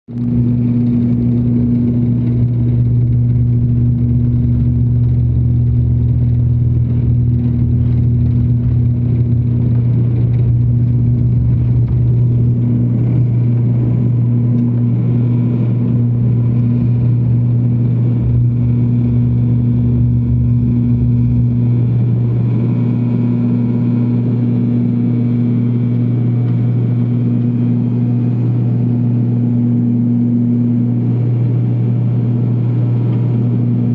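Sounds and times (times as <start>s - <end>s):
jet engines at takeoff power: 0.1s - 33.9s.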